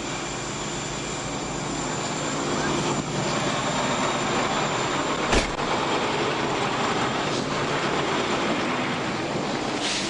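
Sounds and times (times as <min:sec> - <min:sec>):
vehicle noise: 0:01.8 - 0:10.0
sharp knock: 0:05.3 - 0:05.6.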